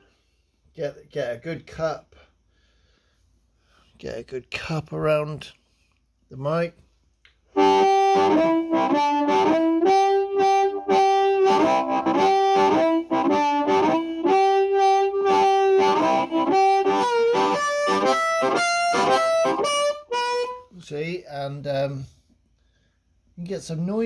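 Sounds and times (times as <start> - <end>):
amplified harmonica: 7.5 - 20.8.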